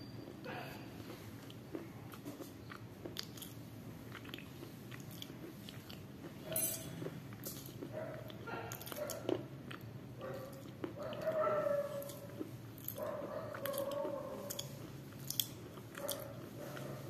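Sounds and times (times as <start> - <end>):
crunchy food being chewed: 0.2 - 17.0.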